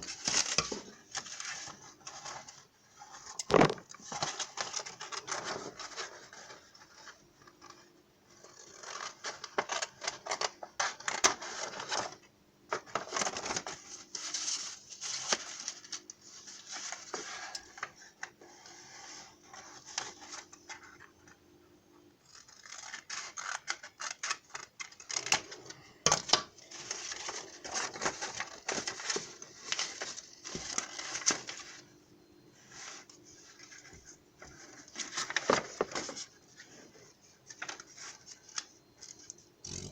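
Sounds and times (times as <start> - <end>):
paper rustling: 26.6 - 31.8, 32.7 - 39.9.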